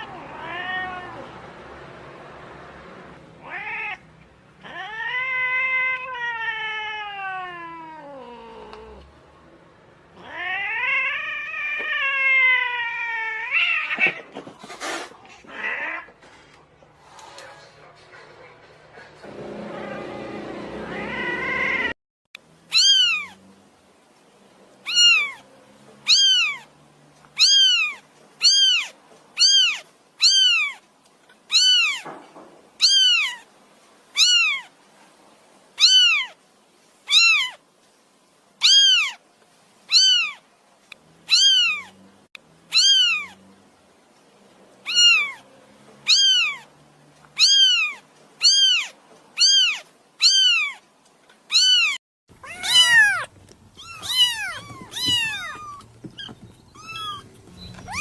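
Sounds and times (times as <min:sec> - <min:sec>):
cat meowing: 0:00.0 - 0:01.3, 0:03.4 - 0:09.0, 0:10.1 - 0:14.4, 0:15.4 - 0:16.2, 0:20.8 - 0:22.0, 0:22.7 - 0:23.4, 0:24.8 - 0:26.7, 0:27.4 - 0:30.8, 0:31.5 - 0:32.2, 0:32.8 - 0:33.5, 0:34.1 - 0:34.8, 0:35.8 - 0:36.4, 0:37.1 - 0:37.6, 0:38.6 - 0:39.2, 0:39.9 - 0:40.4, 0:41.3 - 0:42.0, 0:42.7 - 0:43.4, 0:44.8 - 0:46.7, 0:47.4 - 0:50.8, 0:51.5 - 0:58.0.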